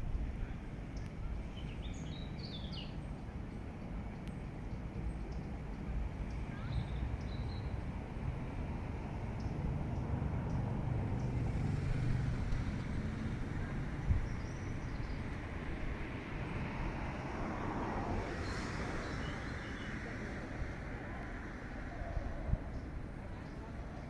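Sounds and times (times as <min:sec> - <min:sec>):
distant city traffic rumble: 0:00.0 - 0:24.0.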